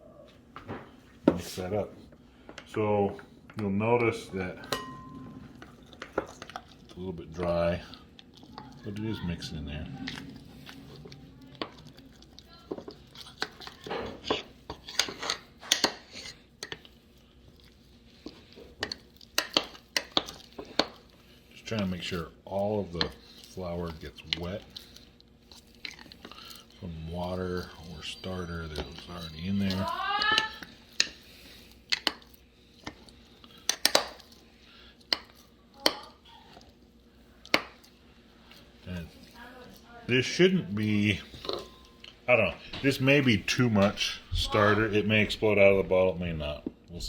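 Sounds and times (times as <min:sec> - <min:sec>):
spoon stirring thick dough: 0:01.3 - 0:47.0
spoon clinking against container: 0:04.6 - 0:05.3.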